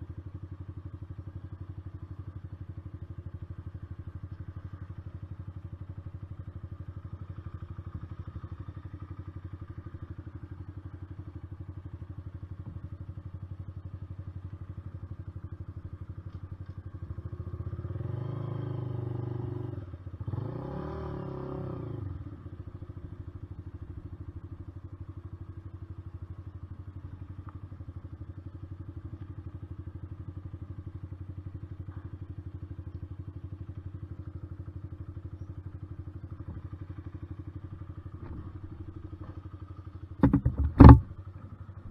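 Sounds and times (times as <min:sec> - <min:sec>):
motorcycle engine revving: 0:17.0 - 0:41.8.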